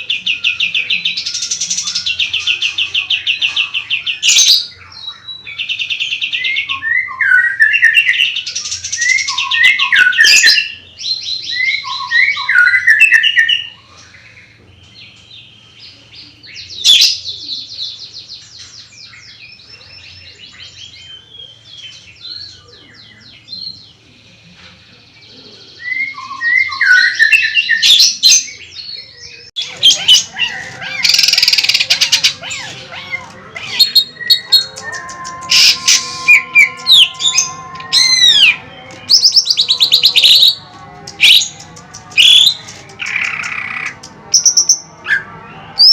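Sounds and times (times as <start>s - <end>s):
songbirds singing: 0.0s - 45.9s
sharp loud bird call: 29.7s - 40.6s.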